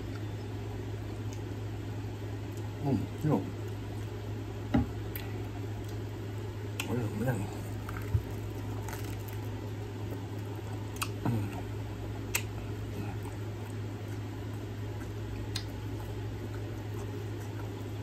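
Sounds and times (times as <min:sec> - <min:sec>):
steady low hum: 0:00.0 - 0:18.0
person chewing food: 0:05.0 - 0:18.0.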